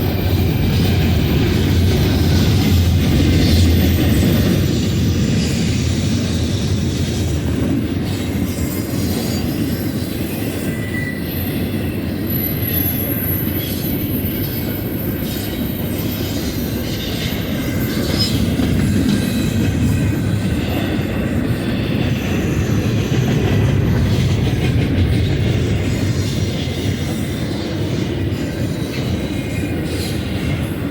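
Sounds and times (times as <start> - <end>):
freight train wheels rumbling: 0.0 - 30.9
faint high wheel squeal: 8.2 - 23.8.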